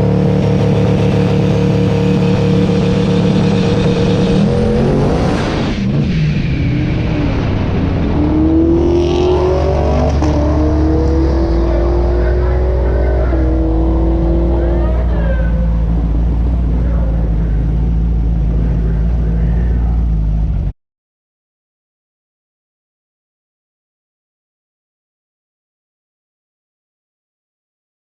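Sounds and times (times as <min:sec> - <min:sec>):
race car accelerating: 0:00.0 - 0:20.7
steady low rumble: 0:00.0 - 0:20.7.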